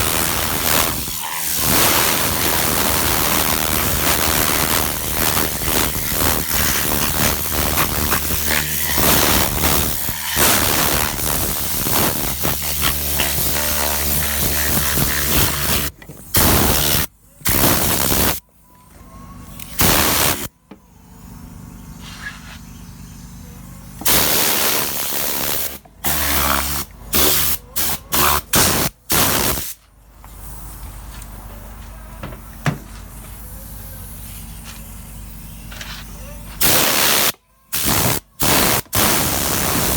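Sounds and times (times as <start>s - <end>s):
compressed air blasts hissing: 0.0s - 18.4s, 19.7s - 20.5s, 24.0s - 31.0s, 36.6s - 39.9s.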